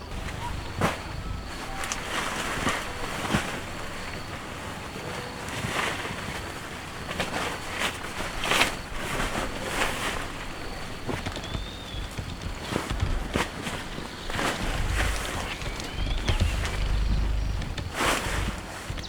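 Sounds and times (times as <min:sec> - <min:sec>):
short rustles and knocks: 0:00.0 - 0:19.0.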